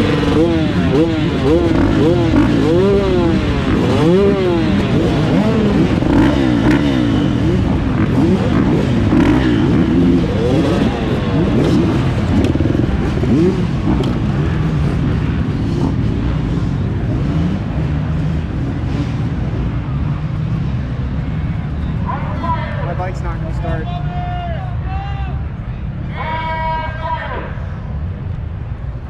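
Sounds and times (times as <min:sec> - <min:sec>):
dirt bike engine revving: 0:00.0 - 0:21.4.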